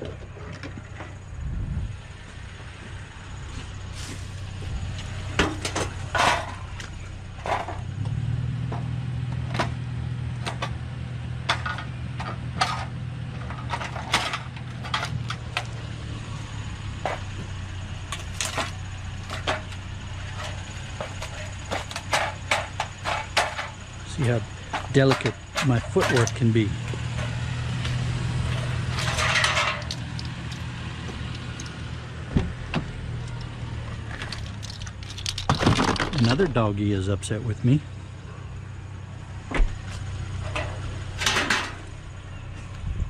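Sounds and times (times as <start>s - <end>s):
vehicle engine running: 0.0s - 43.0s
scrap metal knocks and clatters: 5.0s - 8.1s, 10.4s - 10.8s, 11.4s - 15.8s, 17.0s - 36.4s, 39.7s - 42.0s.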